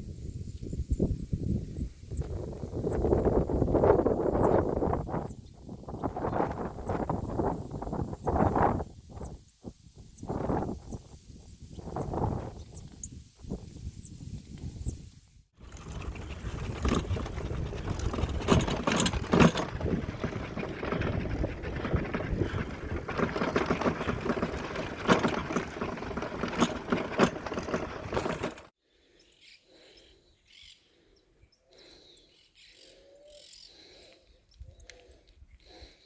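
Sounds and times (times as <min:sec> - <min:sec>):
loud rough noise with knocks: 0:15.6 - 0:28.7.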